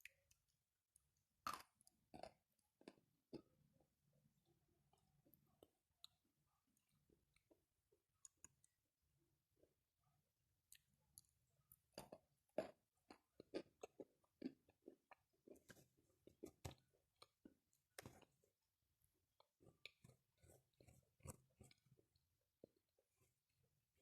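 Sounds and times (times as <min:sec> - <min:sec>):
person chewing gritty crunches: 0:10.8 - 0:18.5, 0:19.4 - 0:22.8.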